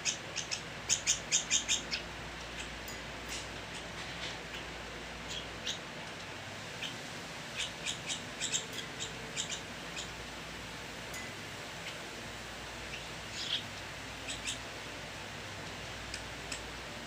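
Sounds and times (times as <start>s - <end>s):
baby birds cheeping: 0.0s - 10.2s, 12.8s - 14.8s
steady background hiss: 0.0s - 17.0s.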